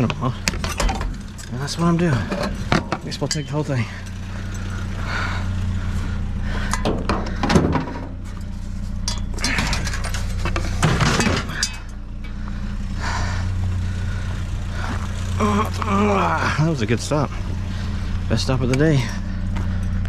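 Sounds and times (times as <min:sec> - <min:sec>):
vehicle engine idling: 0:00.0 - 0:20.0
scrap metal clattering: 0:06.6 - 0:12.4.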